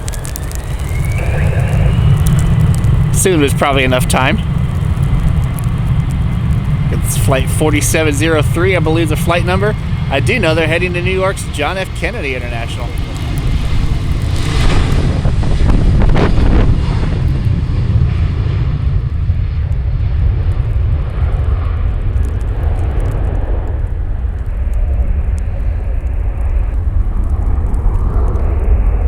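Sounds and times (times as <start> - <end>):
jet engines at takeoff power: 0.0 - 29.0.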